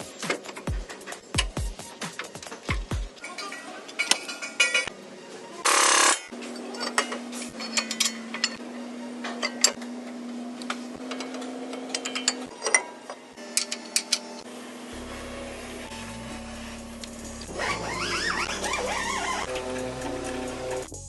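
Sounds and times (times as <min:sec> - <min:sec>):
metallic clicks of hand tools: 0:10.6 - 0:14.4
steady low hum: 0:13.3 - 0:21.0.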